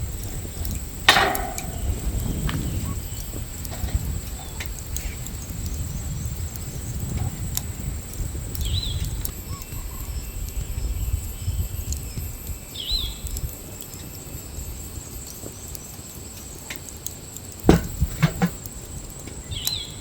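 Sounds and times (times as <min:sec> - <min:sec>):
sharp ringing knock: 0:17.7 - 0:18.6.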